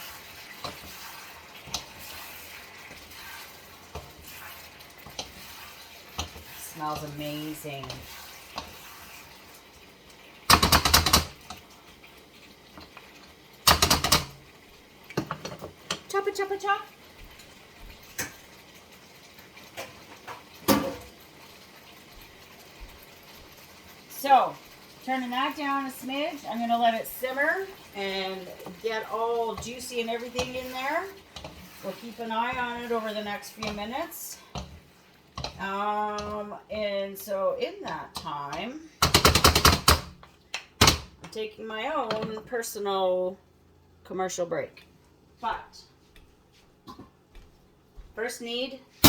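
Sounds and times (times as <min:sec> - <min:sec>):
chicken sizzling in a pan: 0:00.0 - 0:39.0
utensil clicking against pan: 0:10.5 - 0:11.6, 0:13.7 - 0:14.4, 0:35.4 - 0:35.6.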